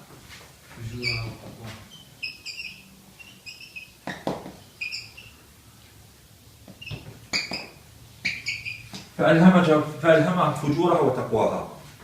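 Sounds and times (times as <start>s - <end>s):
small bird chirping: 0.9s - 5.4s, 6.7s - 9.1s.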